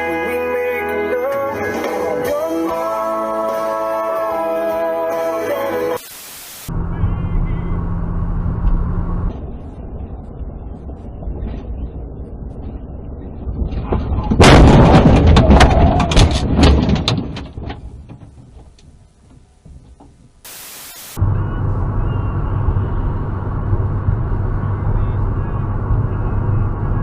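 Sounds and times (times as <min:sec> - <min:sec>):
burst of hiss: 0:06.0 - 0:06.7, 0:20.5 - 0:21.2
steady road noise: 0:06.5 - 0:27.0
crunching and banging impacts: 0:13.5 - 0:20.4
loud vehicle crash: 0:13.6 - 0:18.3.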